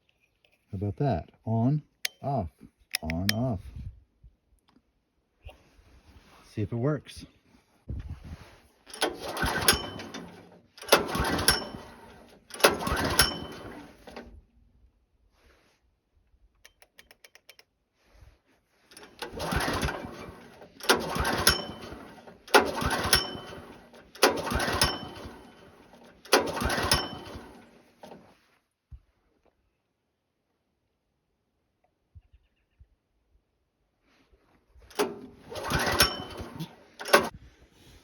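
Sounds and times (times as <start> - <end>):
engine cranking without starting: 8.8 - 14.4, 18.9 - 28.3, 34.9 - 37.4.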